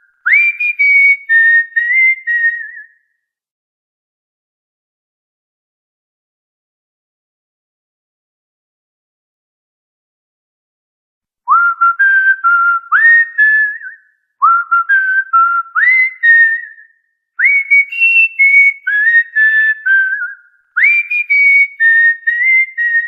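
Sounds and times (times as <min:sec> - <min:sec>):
bird whistling a tune: 0:00.0 - 0:03.1, 0:11.5 - 0:23.0.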